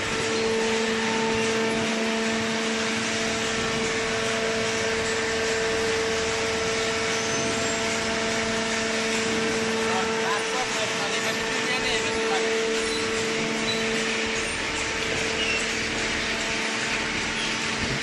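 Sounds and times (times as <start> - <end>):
baler machine hum: 0.0 - 18.0
constant tone: 0.1 - 18.0.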